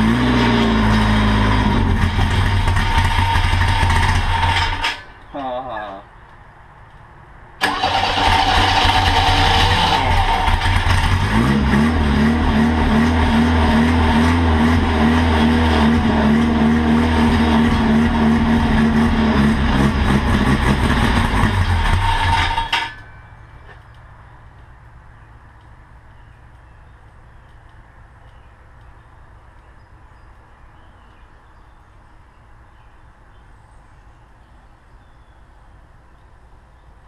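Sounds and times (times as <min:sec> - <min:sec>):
trike engine running rough: 0:00.0 - 0:05.0, 0:07.6 - 0:23.1.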